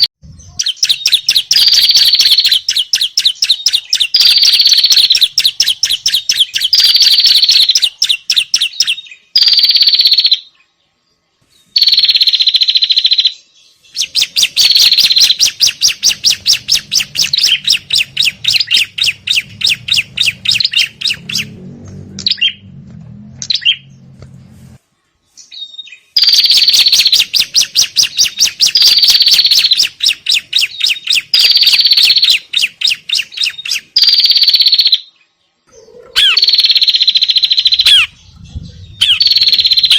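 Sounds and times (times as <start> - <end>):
small songbirds scolding chatter: 0.3 - 21.6, 25.3 - 39.9
faint low hum: 13.7 - 25.4.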